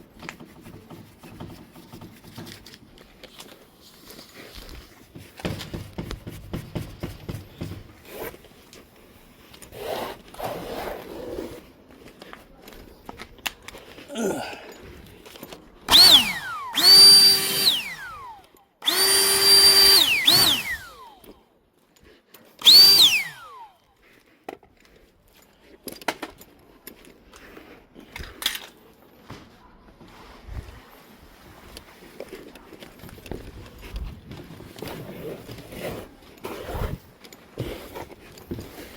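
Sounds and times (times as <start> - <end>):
cordless drill whining: 15.9 - 21.3, 22.6 - 23.7.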